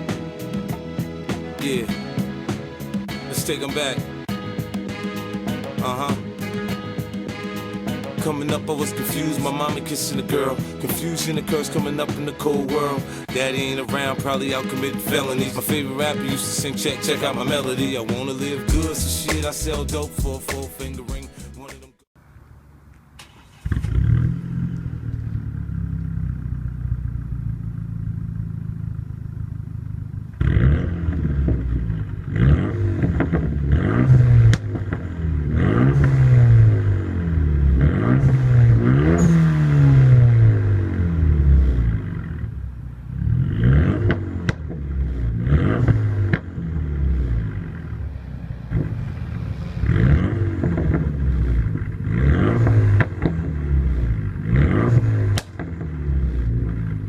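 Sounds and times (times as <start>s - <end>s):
car engine idling and revving: 22.9s - 57.0s.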